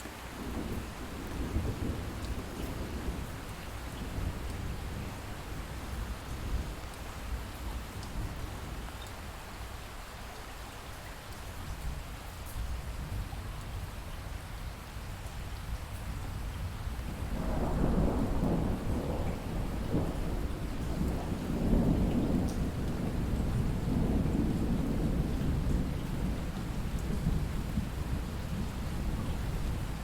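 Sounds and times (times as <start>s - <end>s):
light rain: 0.0s - 30.0s
thunder rumbling: 0.4s - 8.8s, 16.7s - 30.0s.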